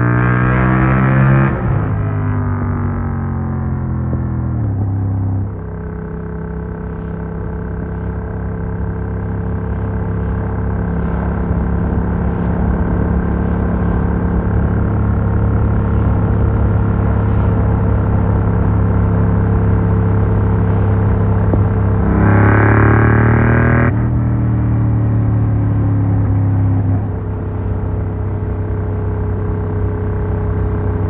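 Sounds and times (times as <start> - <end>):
motorcycle engine while riding: 0.0 - 31.0.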